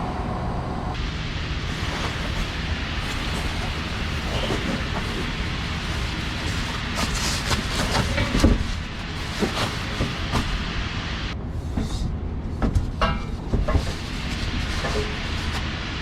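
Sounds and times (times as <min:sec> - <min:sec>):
road rumble: 0:00.0 - 0:16.0
knocks and rattles: 0:01.7 - 0:10.7.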